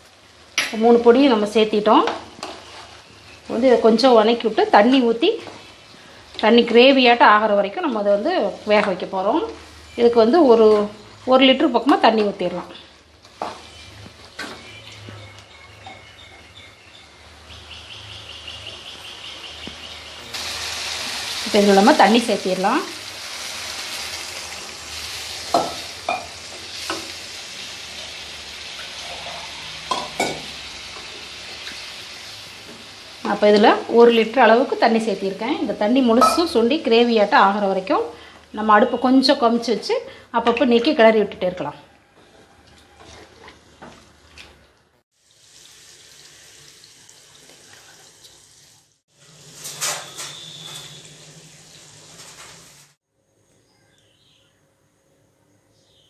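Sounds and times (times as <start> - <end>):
food sizzling in a pan: 0.0 - 11.3, 13.0 - 14.8, 19.3 - 37.7, 45.1 - 53.0.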